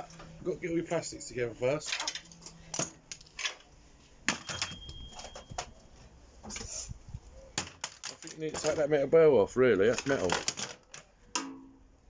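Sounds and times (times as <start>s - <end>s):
plastic and metal parts clattering: 1.8s - 3.7s, 4.3s - 5.8s, 7.6s - 9.1s, 9.8s - 11.5s.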